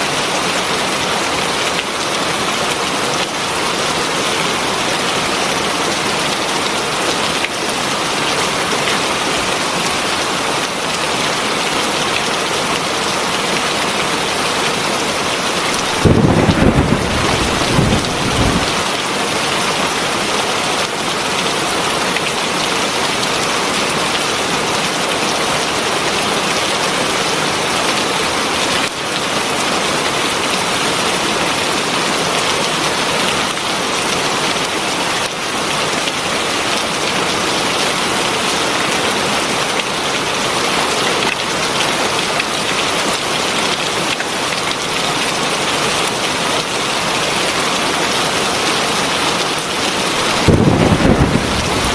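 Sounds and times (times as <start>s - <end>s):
heavy rain falling: 0.0s - 51.9s
low thunder rumble: 15.9s - 18.8s, 50.2s - 51.9s.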